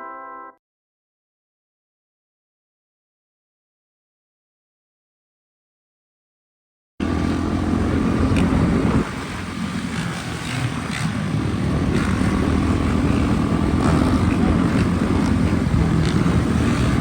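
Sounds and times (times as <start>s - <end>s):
dirt bike engine running: 7.0s - 17.0s.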